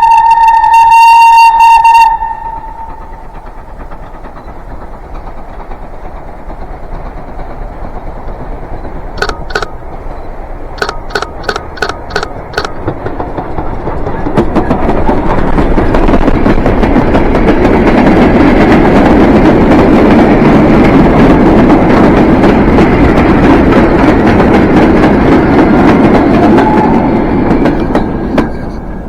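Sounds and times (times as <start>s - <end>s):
train wheels rumbling on rails: 0.0s - 29.0s
sharp clicks of train wheels: 1.9s - 29.0s.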